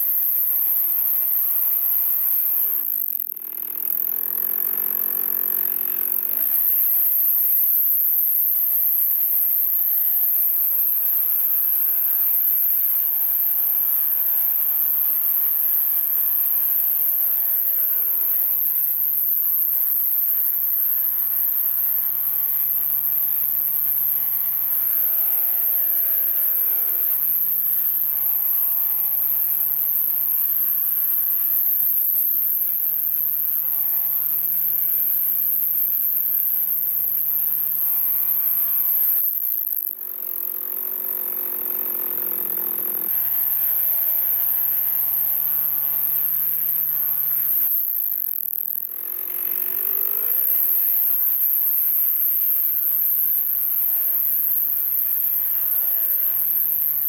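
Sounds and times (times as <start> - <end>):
chainsaw cutting logs: 1.8 - 8.3, 38.2 - 45.3, 48.7 - 52.1.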